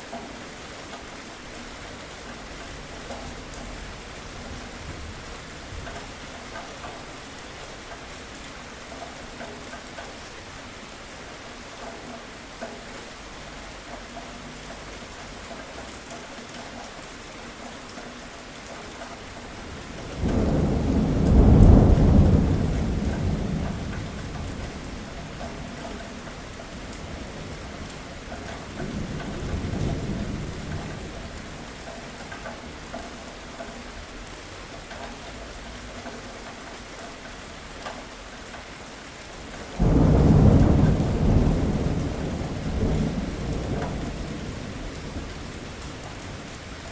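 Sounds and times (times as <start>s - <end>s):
steady rain: 0.0s - 46.9s
rolling thunder: 19.7s - 31.7s, 39.8s - 46.9s.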